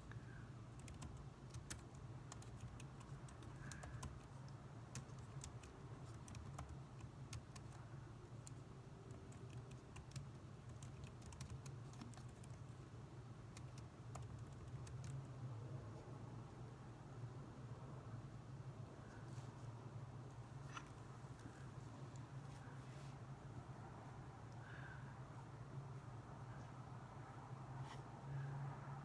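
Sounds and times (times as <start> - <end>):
steady low hum: 0.0 - 29.0
typing on computer keyboard: 0.7 - 7.8, 8.4 - 12.6, 13.5 - 15.2.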